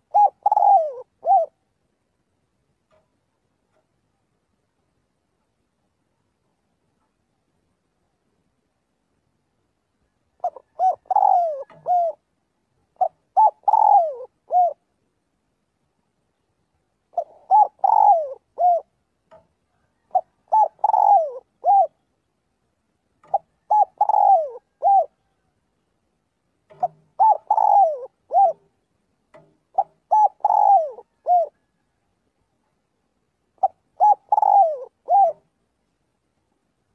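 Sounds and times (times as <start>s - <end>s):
dove cooing: 0.0s - 1.6s, 10.3s - 12.3s, 12.9s - 14.9s, 17.1s - 19.0s, 19.8s - 22.1s, 23.2s - 25.5s, 26.7s - 32.0s, 33.6s - 35.5s.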